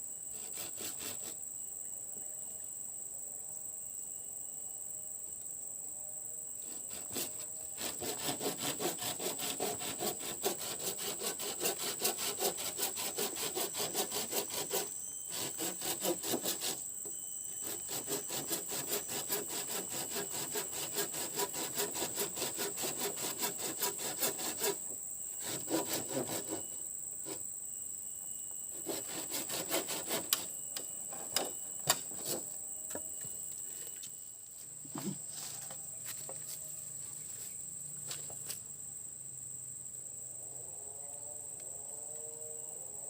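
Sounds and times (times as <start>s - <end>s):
insects droning: 0.0s - 43.0s
hand saw cutting wood: 0.4s - 1.4s, 6.7s - 16.8s, 17.6s - 27.4s, 28.8s - 30.5s, 31.1s - 32.4s.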